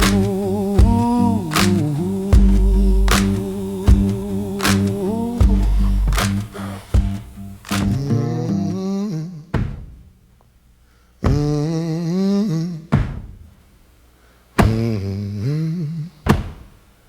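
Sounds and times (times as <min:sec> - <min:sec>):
person humming a moaning line: 0:00.0 - 0:06.9, 0:08.0 - 0:09.5, 0:11.3 - 0:12.9, 0:14.7 - 0:16.2
heavy stomping thumps: 0:00.0 - 0:08.2, 0:11.2 - 0:11.6, 0:12.9 - 0:13.5
sparse blues backing: 0:00.0 - 0:08.9.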